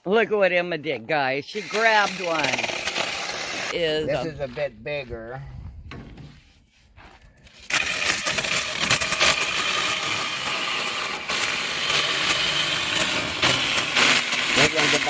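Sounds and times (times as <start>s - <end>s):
electric chainsaw cutting wood: 1.5s - 3.8s, 7.6s - 15.0s.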